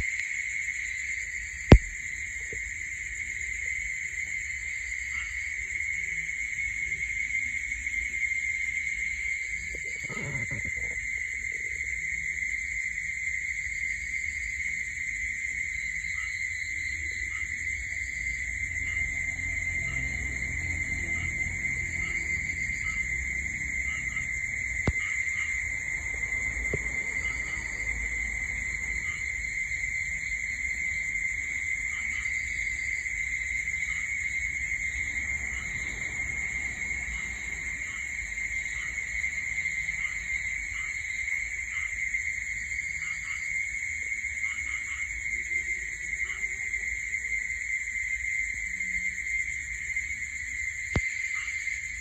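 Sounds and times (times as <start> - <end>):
insect chirps: 0.0 - 52.0
insects trilling: 0.0 - 52.0.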